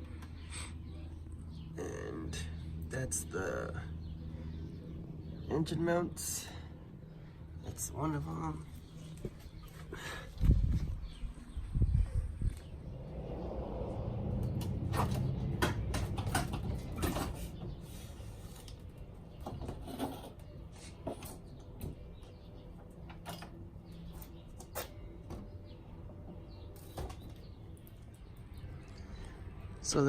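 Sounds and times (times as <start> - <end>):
low rumble: 10.0 - 15.4
clicks and knocks of car repair: 14.6 - 17.4.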